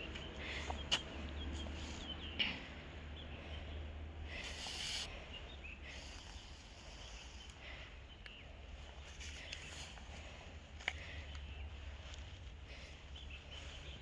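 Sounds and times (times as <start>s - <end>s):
faint bird chirps: 0.0s - 10.0s
steady low rumble: 0.0s - 14.0s
hiss-like rustle: 4.4s - 5.2s.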